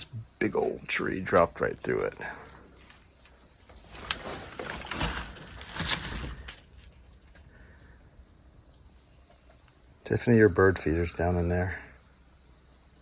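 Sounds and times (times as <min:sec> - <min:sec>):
insect chirring: 0:00.0 - 0:13.0
rustling and crunching: 0:02.7 - 0:07.5.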